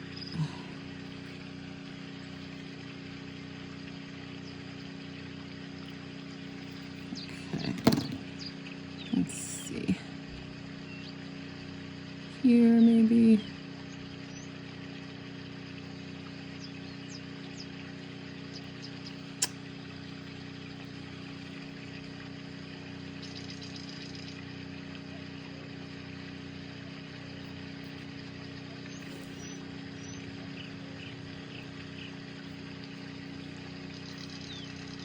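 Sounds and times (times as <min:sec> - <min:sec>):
machine hum with hiss: 0:00.0 - 0:35.0
sharp click: 0:19.4 - 0:19.6.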